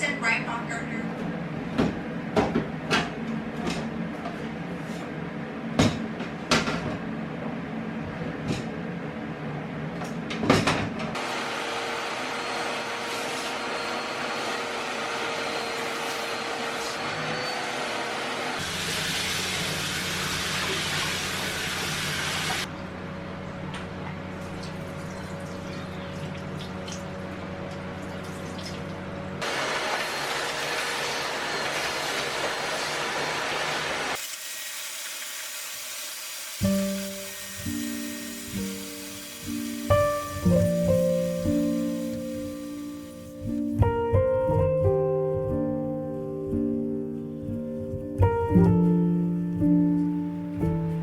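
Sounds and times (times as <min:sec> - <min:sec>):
tap water running: 0:18.6 - 0:22.7, 0:24.4 - 0:43.6.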